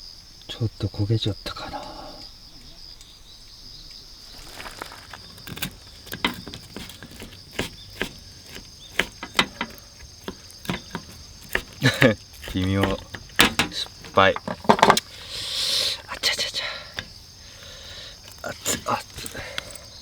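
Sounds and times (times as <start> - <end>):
crickets chirring: 0.0 - 20.0
sharp clicks and pops: 4.3 - 15.2.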